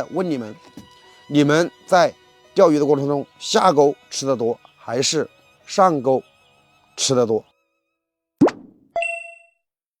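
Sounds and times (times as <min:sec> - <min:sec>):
bell-like ding: 0:09.0 - 0:09.6.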